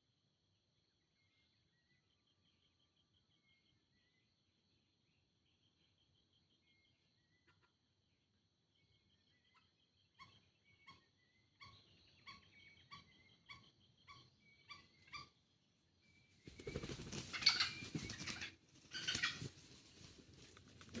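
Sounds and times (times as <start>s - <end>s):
junglefowl calls: 16.8s - 19.6s.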